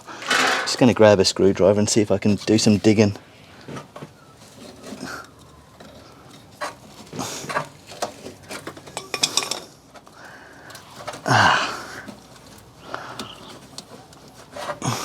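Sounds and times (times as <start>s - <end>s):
metal tools clinking: 0.0s - 1.1s, 8.5s - 9.7s.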